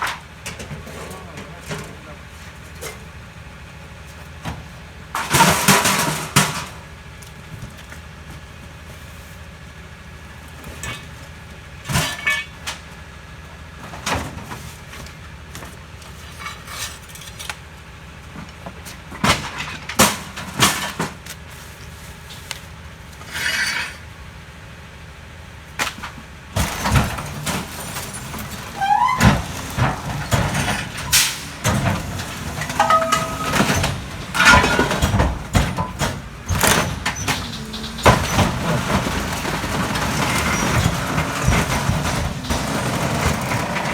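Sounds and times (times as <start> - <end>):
garbage truck idling: 0.1 - 43.9
waste knocking into hopper: 25.8 - 43.9.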